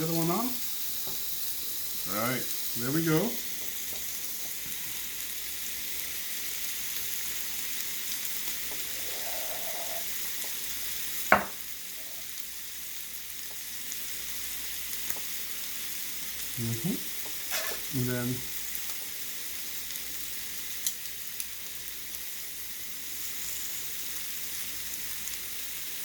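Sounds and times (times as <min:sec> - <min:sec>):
meat sizzling on a griddle: 0:00.0 - 0:26.0
sharp knock: 0:11.3 - 0:11.6.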